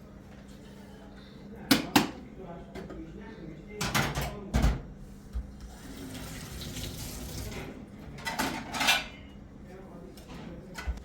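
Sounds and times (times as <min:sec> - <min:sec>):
water running: 0:05.7 - 0:07.7.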